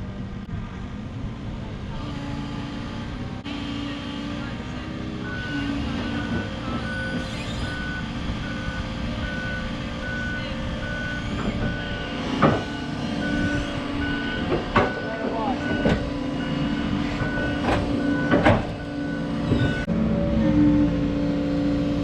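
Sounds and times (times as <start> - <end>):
diesel engine running: 0.0 - 22.0
reversing alarm beeping: 5.2 - 19.9.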